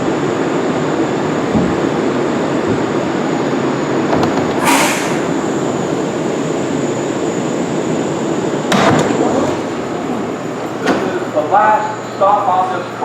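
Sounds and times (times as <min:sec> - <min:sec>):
subway train rumbling: 0:00.0 - 0:13.0
metal clank: 0:04.2 - 0:05.6
air hissing: 0:04.2 - 0:06.3.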